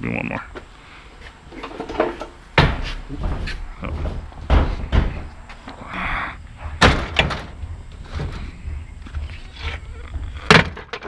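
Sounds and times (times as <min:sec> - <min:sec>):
items knocking in truck: 0:01.6 - 0:05.3, 0:06.7 - 0:11.0.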